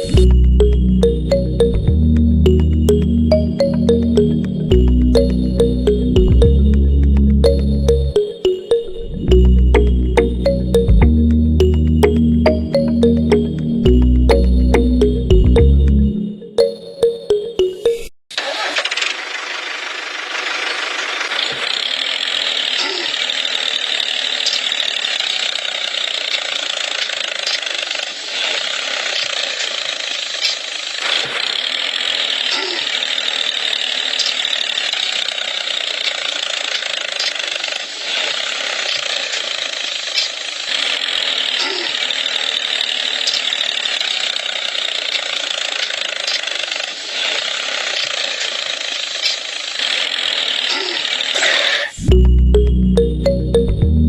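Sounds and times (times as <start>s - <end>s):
small geared motor running: 18.3s - 52.3s.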